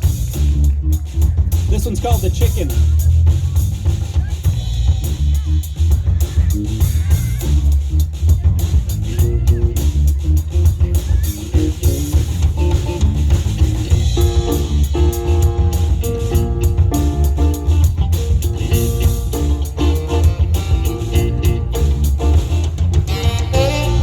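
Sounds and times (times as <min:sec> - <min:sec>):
electric bass line: 0:00.0 - 0:24.0
funk band playing: 0:00.0 - 0:24.0
held instrument notes: 0:13.9 - 0:24.0.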